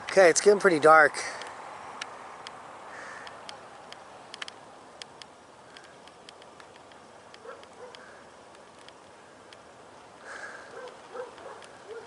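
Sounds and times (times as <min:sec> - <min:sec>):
faint sharp clicks: 0:01.3 - 0:02.6, 0:03.2 - 0:09.7, 0:10.6 - 0:12.0.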